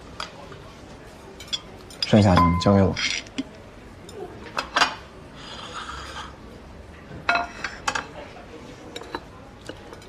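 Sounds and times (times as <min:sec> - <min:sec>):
dishes and chopsticks clinking: 0:01.3 - 0:06.3, 0:07.1 - 0:08.2, 0:08.9 - 0:10.0.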